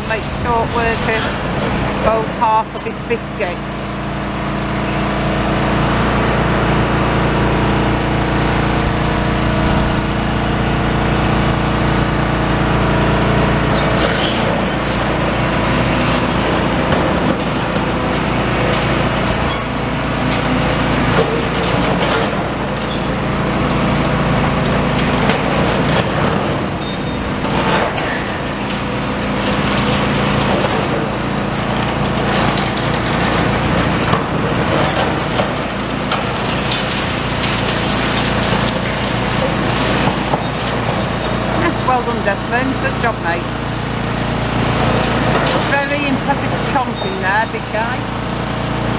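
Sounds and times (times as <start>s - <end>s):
diesel engine under load: 0.0s - 48.9s
concrete cracking and crunching: 13.6s - 41.6s, 44.8s - 46.5s.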